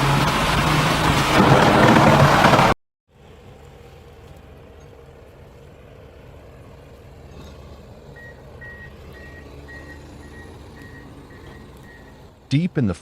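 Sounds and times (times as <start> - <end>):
heavy machine engine rumbling: 0.0 - 2.8
reversing alarm beeping: 8.2 - 12.2.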